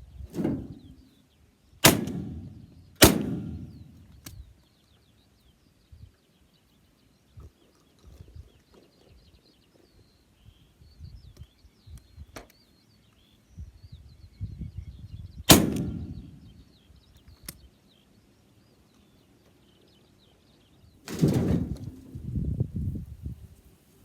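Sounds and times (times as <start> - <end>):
wind buffeting microphone: 0.0 - 1.0, 7.3 - 12.4, 13.5 - 17.2, 20.9 - 23.7
small birds chirping: 0.0 - 24.0
shotgun shot echoing: 1.8 - 4.1, 15.5 - 16.5
faint click: 4.1 - 4.4, 17.1 - 17.7.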